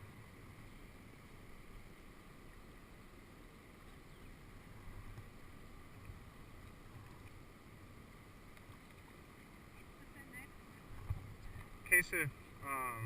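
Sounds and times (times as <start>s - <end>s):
wind rumble on microphone: 8.5s - 13.0s.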